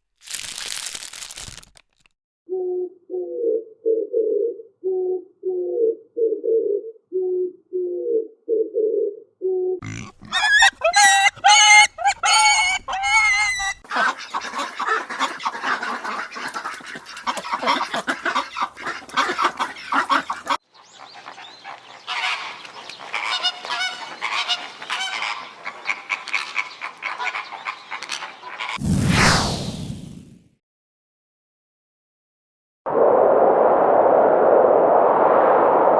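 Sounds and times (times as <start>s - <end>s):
geese honking: 9.8s - 28.8s.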